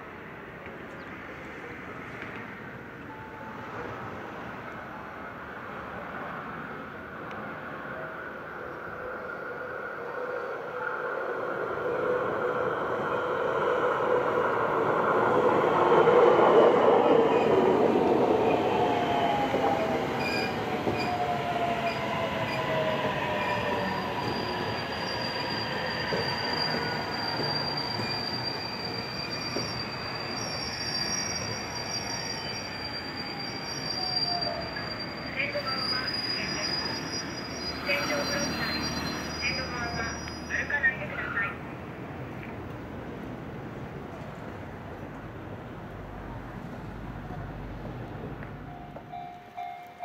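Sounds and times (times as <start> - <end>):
electric train passing: 0.1 - 50.0
thin high squeal: 24.3 - 40.6.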